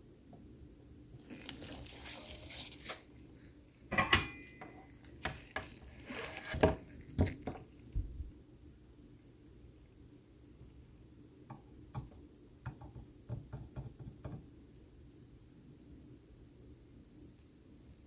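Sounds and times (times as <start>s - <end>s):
scratchy rustle: 1.2s - 3.2s, 5.3s - 7.1s.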